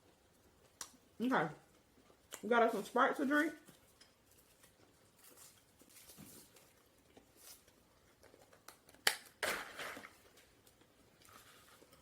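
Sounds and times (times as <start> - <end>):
close-up eating sounds: 3.6 - 9.0.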